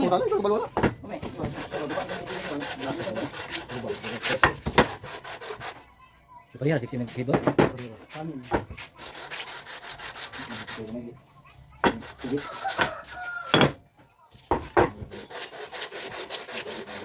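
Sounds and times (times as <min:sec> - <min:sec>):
hand rubbing strokes: 0:01.3 - 0:05.8, 0:07.0 - 0:11.1.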